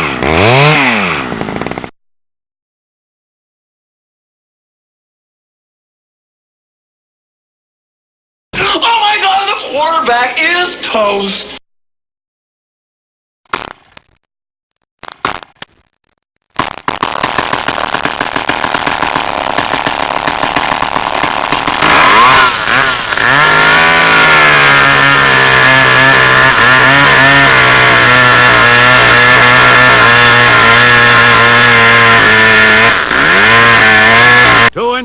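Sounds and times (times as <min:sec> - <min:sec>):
chainsaw engine revving: 0:00.0 - 0:01.9, 0:16.8 - 0:34.7
chainsaw pull-start cord: 0:17.1 - 0:34.7.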